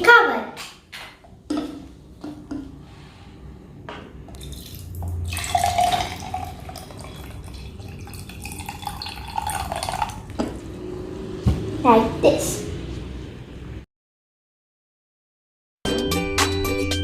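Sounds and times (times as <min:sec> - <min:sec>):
liquid pouring into glass cup: 0:04.3 - 0:10.4.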